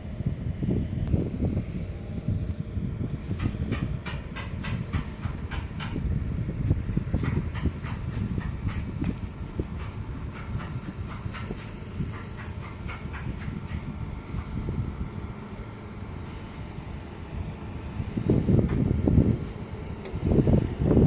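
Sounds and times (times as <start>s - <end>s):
low machine rumble: 0.0s - 21.0s
sharp clicks and ticks: 3.3s - 6.0s, 7.2s - 14.5s.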